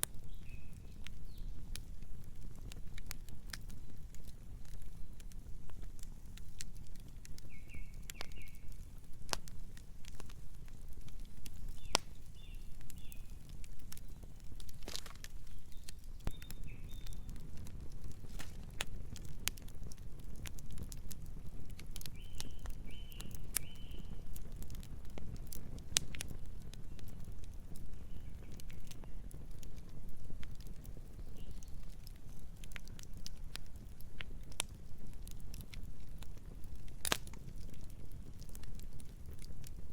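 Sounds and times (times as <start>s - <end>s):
campfire crackling and popping: 0.0s - 39.9s
low fire rumble: 0.0s - 39.9s.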